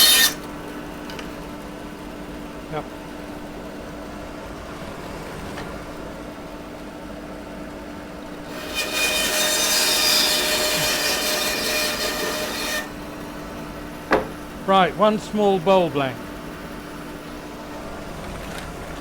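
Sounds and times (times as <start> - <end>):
saw cutting through wood: 0.0 - 0.5, 8.4 - 16.1
electric saw motor humming: 0.0 - 4.6, 8.4 - 18.9.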